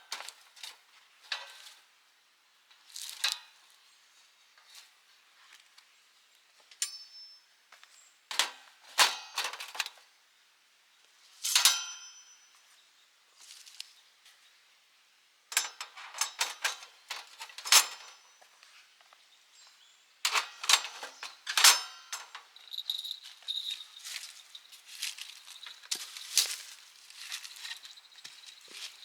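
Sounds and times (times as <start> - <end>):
metal clinking and clanging: 6.8 - 7.4, 11.5 - 12.5, 15.5 - 18.3, 20.3 - 26.6.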